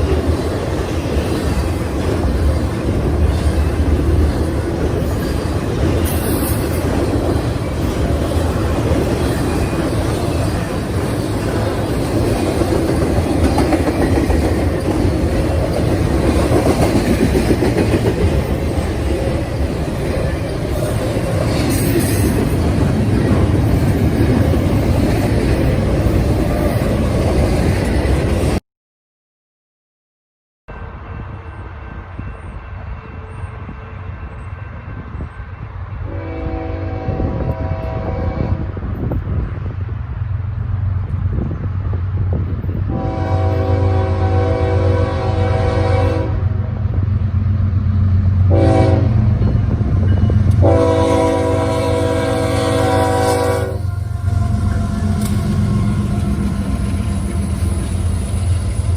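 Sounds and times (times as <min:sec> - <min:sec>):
freight train rumbling past: 0:00.0 - 0:28.6, 0:30.7 - 0:58.9
multi-tone train air horn: 0:36.0 - 0:38.7, 0:42.9 - 0:46.6, 0:48.5 - 0:49.2, 0:50.6 - 0:57.2.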